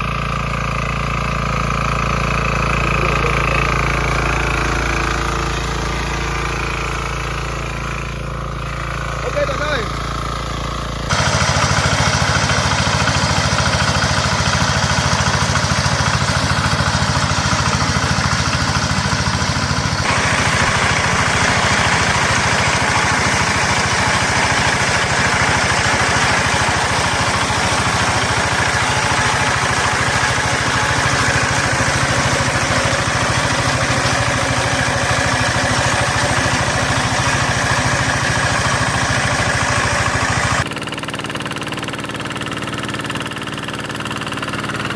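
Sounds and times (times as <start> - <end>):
walking tractor engine running: 0.0 - 44.9
harsh high clatter: 11.0 - 44.9.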